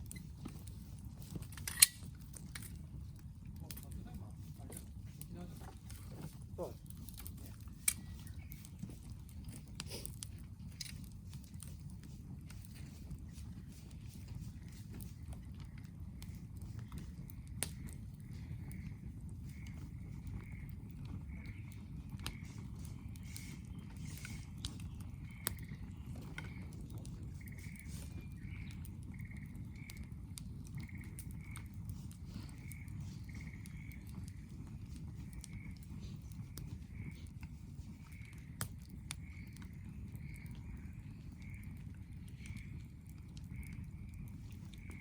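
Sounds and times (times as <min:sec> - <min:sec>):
campfire crackling: 0:00.0 - 0:45.0
fire sharp pops: 0:00.0 - 0:45.0
small animal trilled calls: 0:12.8 - 0:45.0.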